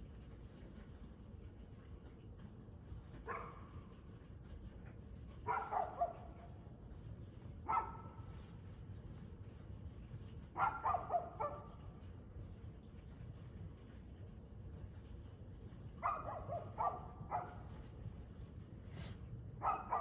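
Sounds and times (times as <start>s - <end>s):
dog barking: 3.3s - 3.6s, 5.5s - 6.2s, 7.7s - 8.0s, 10.6s - 11.7s, 16.0s - 17.7s, 19.6s - 20.0s.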